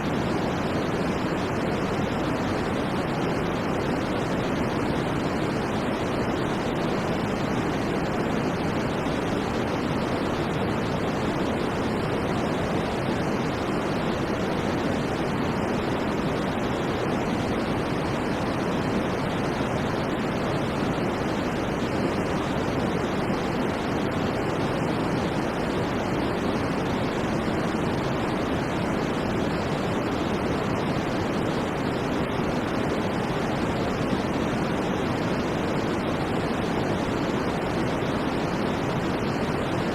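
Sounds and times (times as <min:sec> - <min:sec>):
white noise: 0:00.0 - 0:39.9.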